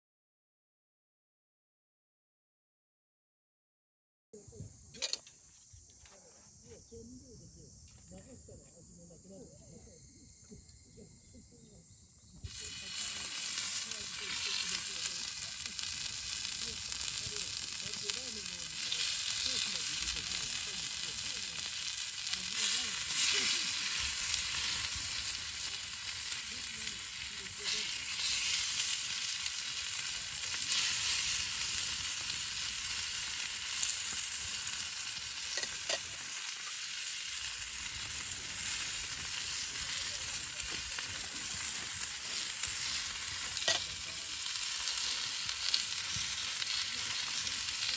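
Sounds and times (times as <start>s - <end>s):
food sizzling in frying pan: 12.3s - 47.9s.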